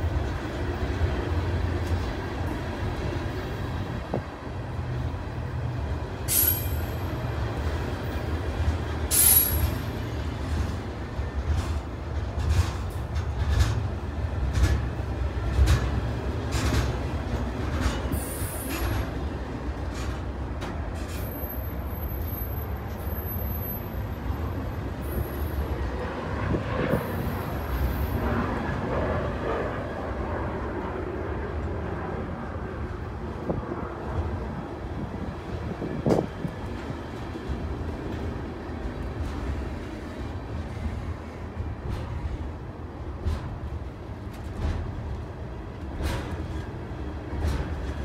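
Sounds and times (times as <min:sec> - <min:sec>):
steel wheels rumbling on rail: 0:00.0 - 0:48.0
wheels clacking over rail joints: 0:06.2 - 0:23.1, 0:35.4 - 0:48.0
high-pitched wheel squeals: 0:09.1 - 0:09.9.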